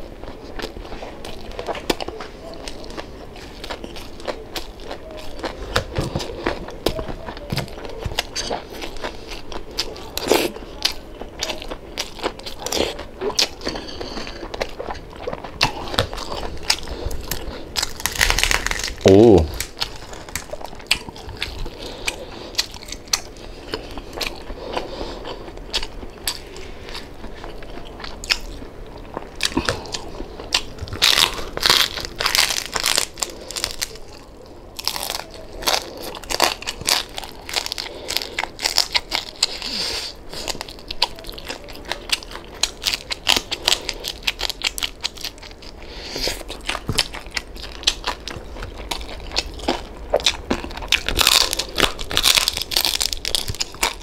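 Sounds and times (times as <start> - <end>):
crunching crispy skin: 0.0 - 54.0
quiet chewing: 0.0 - 54.0.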